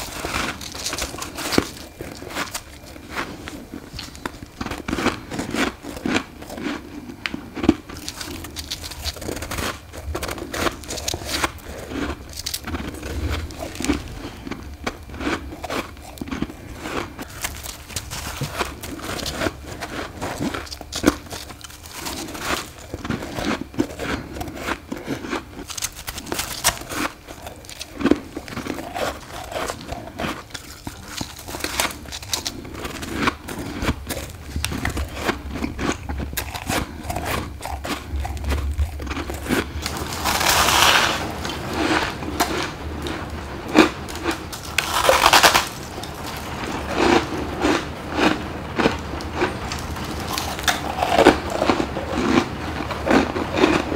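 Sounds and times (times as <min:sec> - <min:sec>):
chewing crunchy ice: 0:00.0 - 0:53.9.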